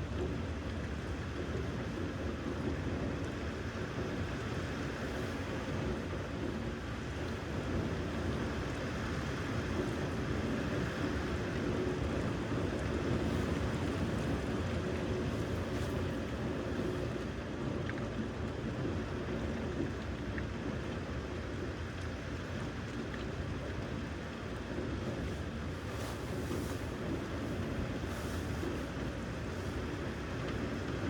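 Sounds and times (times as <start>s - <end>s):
rushing storm wind: 24.5s - 31.0s.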